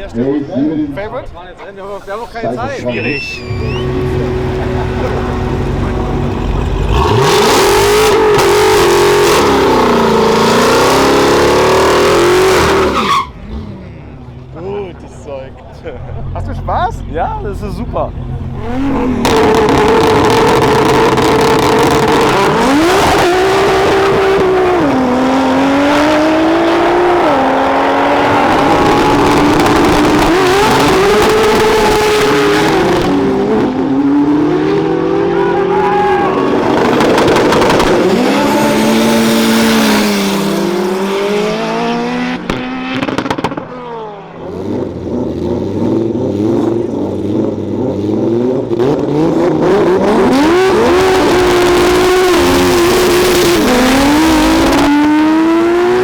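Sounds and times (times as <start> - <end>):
cars accelerating hard: 2.4 - 56.0
lower steady engine note: 2.8 - 7.3.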